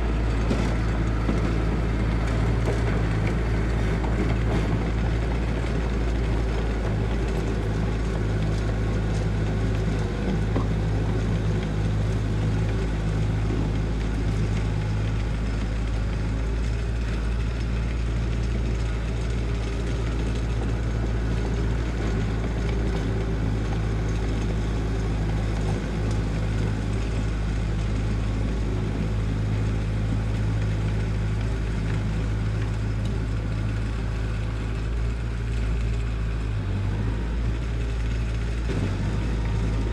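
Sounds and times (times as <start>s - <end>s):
heavy machine engine humming: 0.0s - 39.9s.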